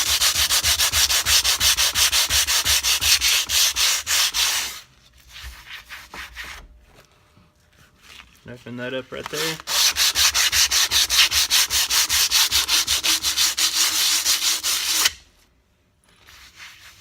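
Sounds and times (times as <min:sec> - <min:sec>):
sandpaper rubbing on metal: 0:00.0 - 0:04.8, 0:09.4 - 0:15.2.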